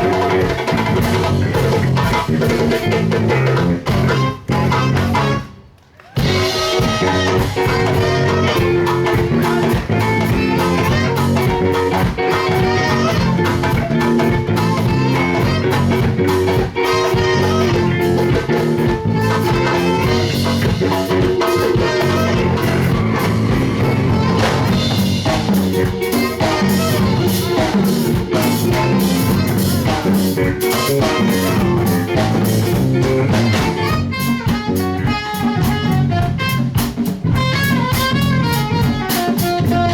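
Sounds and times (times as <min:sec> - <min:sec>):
live band with guitar and drums: 0:00.0 - 0:39.9.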